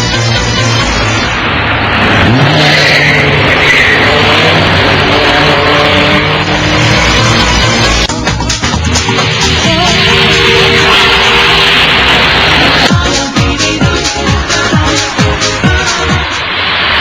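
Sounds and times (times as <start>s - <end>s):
car engine revving: 0.0s - 12.9s
tyre and road noise: 0.0s - 17.0s.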